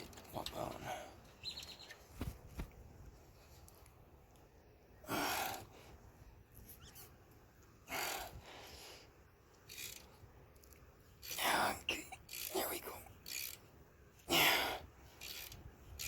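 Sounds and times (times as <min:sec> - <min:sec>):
man breathing heavily: 0:05.0 - 0:06.2, 0:07.8 - 0:09.3, 0:14.2 - 0:15.1.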